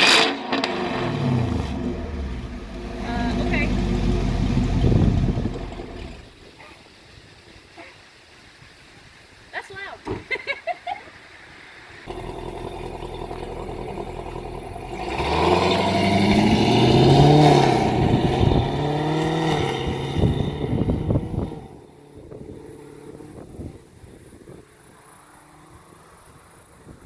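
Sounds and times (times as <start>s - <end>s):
car engine revving under throttle: 0.0s - 6.4s, 12.1s - 24.8s.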